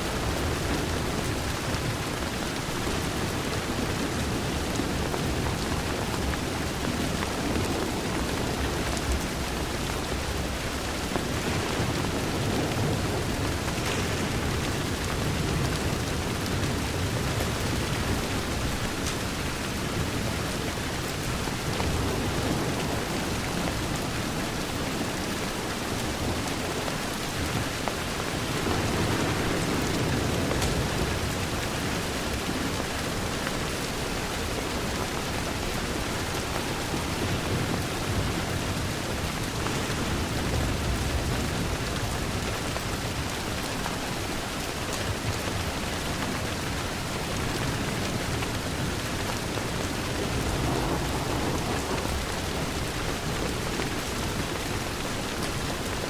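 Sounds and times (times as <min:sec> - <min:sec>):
heavy rain on a window: 0:00.0 - 0:56.0.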